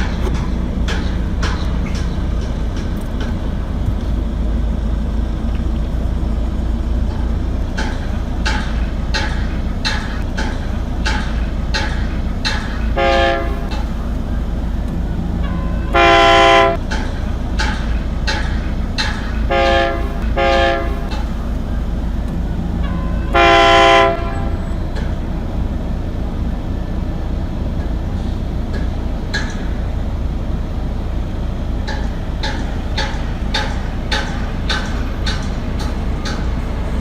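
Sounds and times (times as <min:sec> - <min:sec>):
train wheels clacking on rails: 0:00.0 - 0:37.0
train horn blasts: 0:12.9 - 0:13.9, 0:15.4 - 0:16.8, 0:19.5 - 0:21.3, 0:22.8 - 0:24.8.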